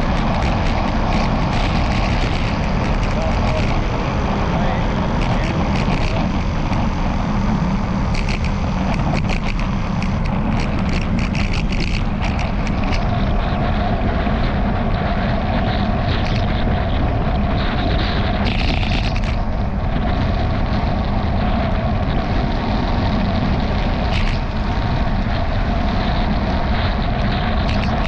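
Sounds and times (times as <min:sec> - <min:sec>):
bicycle riding rumble: 0:00.0 - 0:28.0
wind noise: 0:00.0 - 0:28.0
camera mount rattling: 0:08.1 - 0:13.0, 0:18.4 - 0:19.4, 0:24.1 - 0:24.4, 0:27.7 - 0:28.0.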